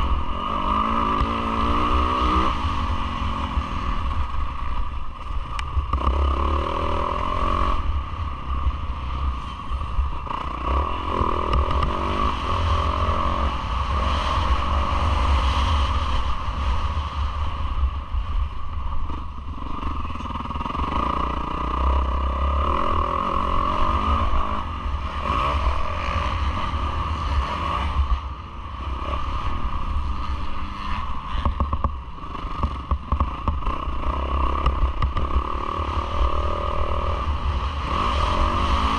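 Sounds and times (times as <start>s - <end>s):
motocross engine revving: 0.0s - 4.0s, 32.2s - 38.9s.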